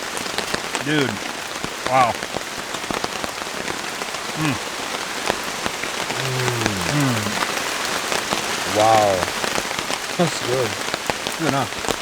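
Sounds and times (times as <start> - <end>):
raindrops ticking close by: 0.0 - 12.0
steady rain falling: 0.0 - 12.0
man murmuring: 0.8 - 1.3, 1.9 - 2.2, 4.4 - 4.7, 6.1 - 7.6, 8.6 - 9.3, 10.2 - 10.8, 11.4 - 11.7.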